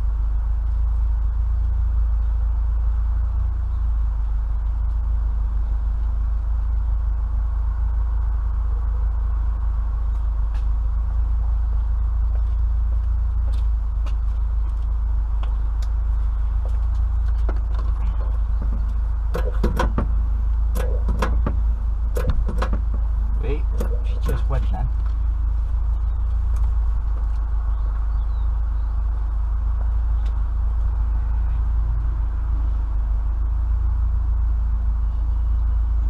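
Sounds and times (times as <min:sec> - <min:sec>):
low rumble: 0:00.0 - 0:36.0
knocks and clatters: 0:16.6 - 0:25.2.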